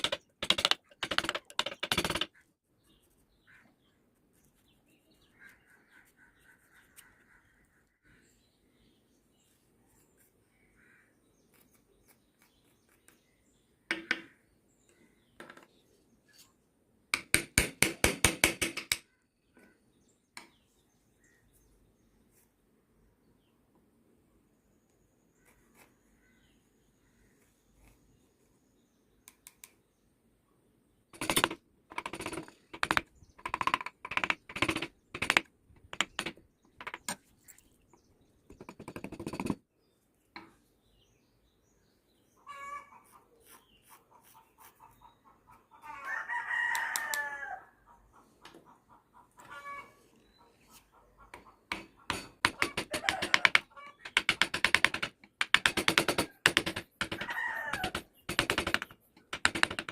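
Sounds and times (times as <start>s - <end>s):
rooster crowing: 45.8s - 47.8s, 57.2s - 58.1s.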